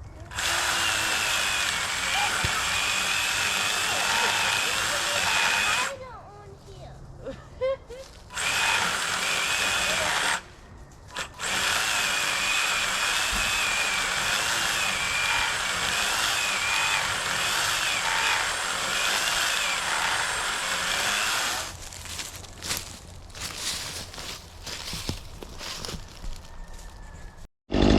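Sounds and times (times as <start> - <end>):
power saw cutting wood: 0.3 - 6.0, 8.3 - 10.5, 11.1 - 22.8.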